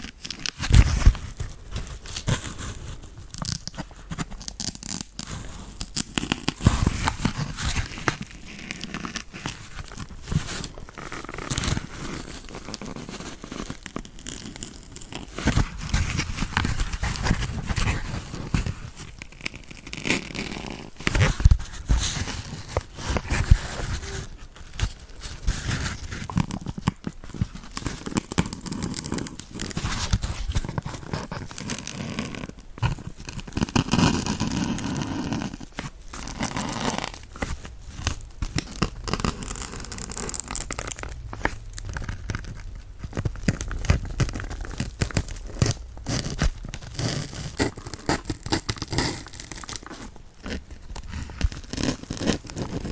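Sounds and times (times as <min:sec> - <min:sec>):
sponge crackling and rustling: 0:00.0 - 0:52.9.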